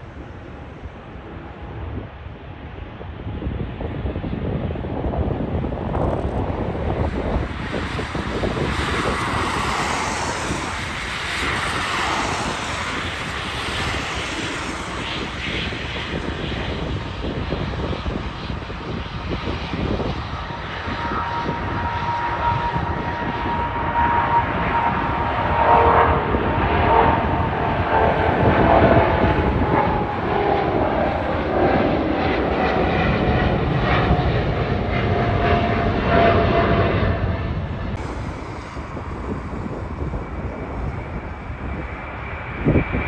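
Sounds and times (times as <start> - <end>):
jet engines passing: 0.0 - 43.0
steady high whine: 37.5 - 43.0.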